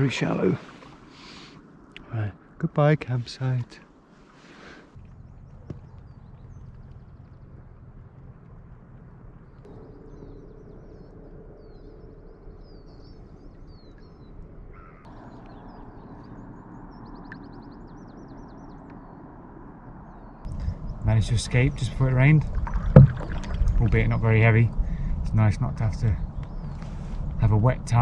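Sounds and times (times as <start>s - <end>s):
outdoor background hiss: 0.0s - 12.0s
small birds chirping and singing: 9.5s - 19.3s, 19.9s - 28.0s.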